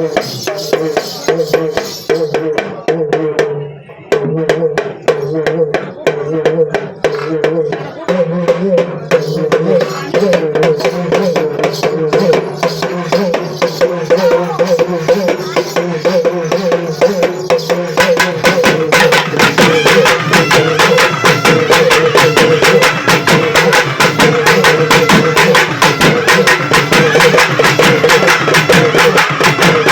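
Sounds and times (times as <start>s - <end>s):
rapid drum strokes: 6.7s - 29.9s.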